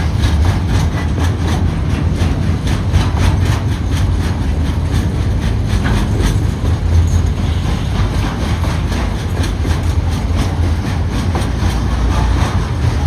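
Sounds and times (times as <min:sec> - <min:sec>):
freight train rumbling past: 0:00.0 - 0:13.0
wheels clicking over rail joints: 0:00.0 - 0:13.0.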